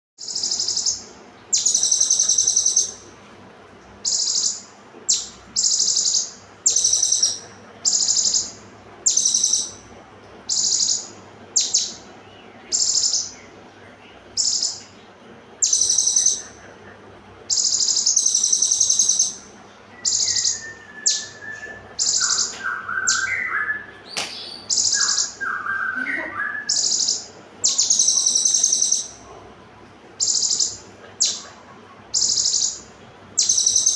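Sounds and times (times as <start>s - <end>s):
lower faint bird call: 0.2s - 3.1s, 4.0s - 9.9s, 10.5s - 33.9s
songbird singing high bursts: 10.5s - 12.0s, 20.0s - 29.2s.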